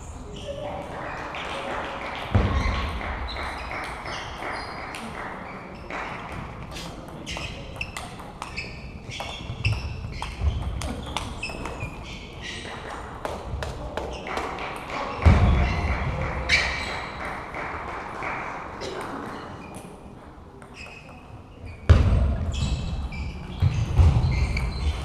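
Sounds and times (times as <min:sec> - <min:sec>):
table tennis balls clicking: 0:06.1 - 0:12.0.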